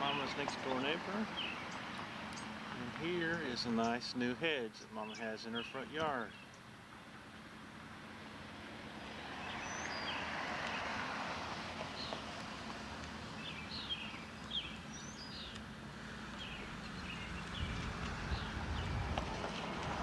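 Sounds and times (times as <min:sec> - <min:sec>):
small birds chirping: 0:00.0 - 0:06.8, 0:09.0 - 0:10.8, 0:13.0 - 0:19.8
steady outdoor hiss: 0:00.0 - 0:20.0.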